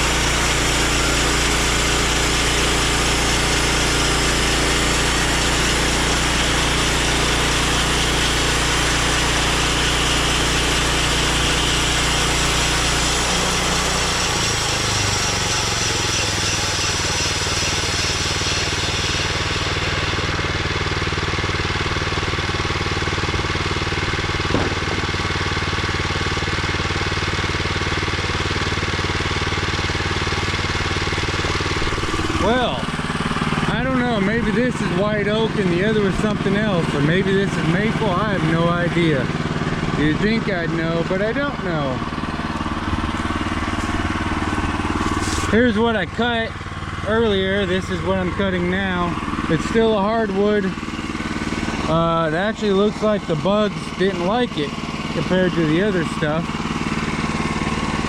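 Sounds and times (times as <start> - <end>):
petrol engine running: 0.0 - 58.0
bandsaw blade hissing through log: 9.7 - 20.6, 44.8 - 45.6
sharp knock: 24.5 - 25.1.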